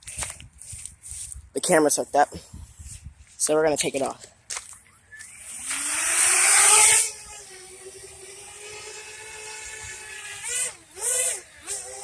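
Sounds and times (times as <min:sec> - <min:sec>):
drone motors whining: 0:04.8 - 0:12.0.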